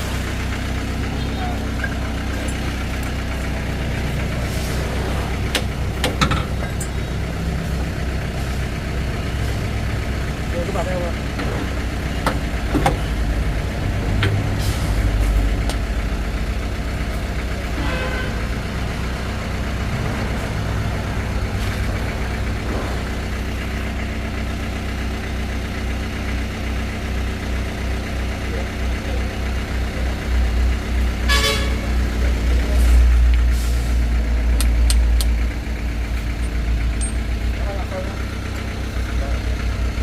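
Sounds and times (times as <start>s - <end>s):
engine idling: 0.0s - 40.0s.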